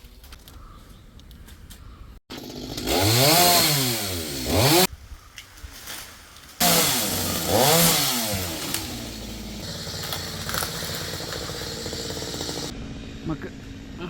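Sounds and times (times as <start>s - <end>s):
chainsaw revving: 2.3s - 4.9s, 6.6s - 12.7s.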